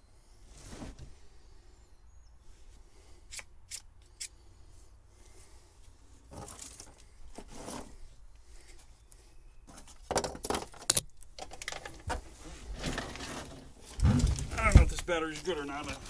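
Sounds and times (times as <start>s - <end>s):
wiring rustling and scraping: 9.7s - 16.0s.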